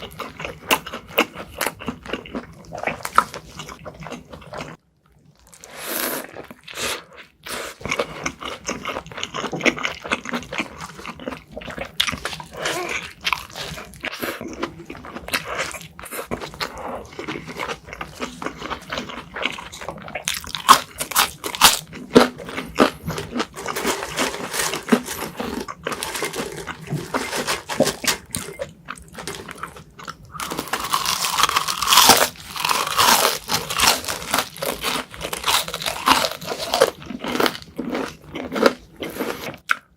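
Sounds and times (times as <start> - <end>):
person chewing a juicy burger: 0.0 - 39.9.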